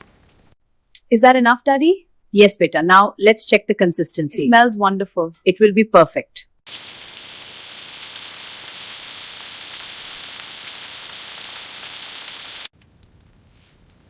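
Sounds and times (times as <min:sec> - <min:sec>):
crackling hiss: 0:06.7 - 0:14.0.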